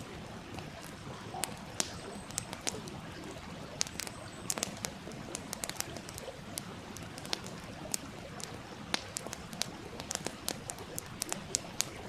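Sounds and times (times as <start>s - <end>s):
campfire crackling: 0.0s - 12.0s
stream murmuring: 0.0s - 12.0s.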